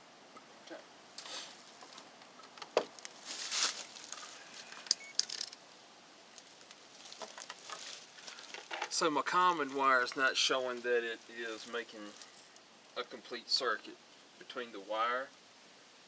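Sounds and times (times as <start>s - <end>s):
wires rustling: 1.1s - 13.0s.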